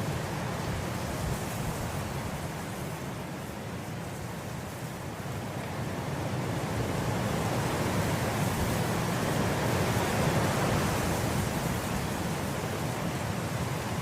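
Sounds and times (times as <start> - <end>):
wind blowing through grass: 0.0 - 14.0.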